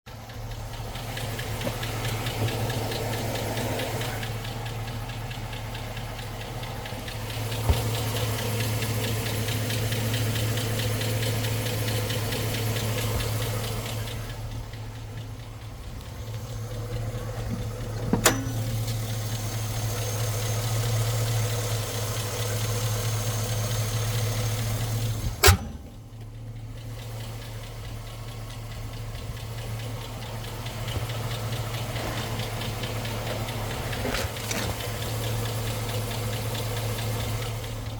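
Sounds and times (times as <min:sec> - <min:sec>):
truck engine idling with ticking: 0:00.0 - 0:37.9.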